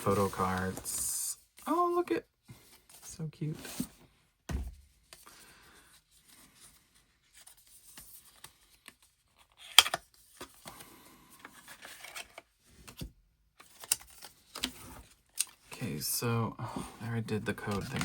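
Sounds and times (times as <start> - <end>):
paper packaging rustling: 0.0 - 1.2, 11.4 - 13.0, 17.5 - 18.0.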